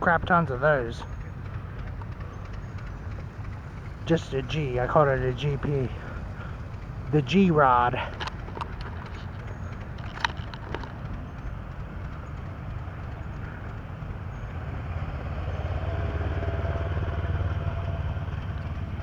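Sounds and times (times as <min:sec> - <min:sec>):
tractor engine rumbling: 0:00.0 - 0:19.0.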